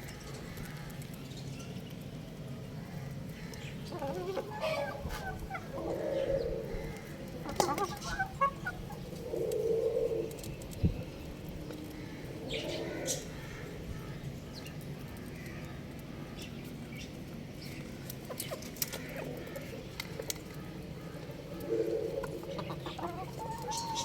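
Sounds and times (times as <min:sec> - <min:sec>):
low background noise: 0:00.0 - 0:24.0
young rooster clucking: 0:03.9 - 0:10.3, 0:21.6 - 0:24.0.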